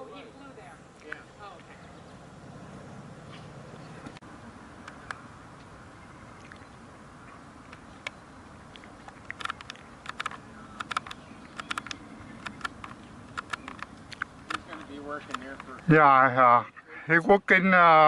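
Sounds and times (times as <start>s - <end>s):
woodpecker pecking wood: 7.7s - 15.9s.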